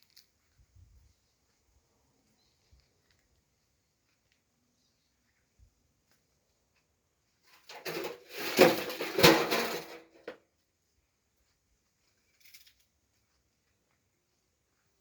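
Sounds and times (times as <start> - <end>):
faint scrape: 7.5 - 10.1
hard objects clattering: 7.6 - 10.4.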